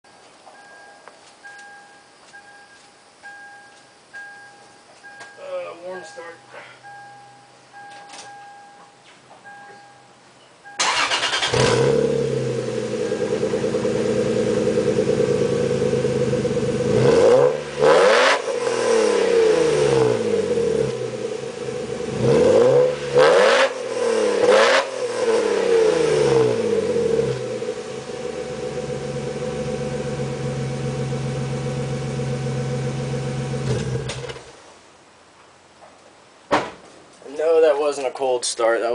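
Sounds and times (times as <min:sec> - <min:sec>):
car engine starting and idling: 0:10.6 - 0:34.8
car engine revving: 0:10.8 - 0:34.5.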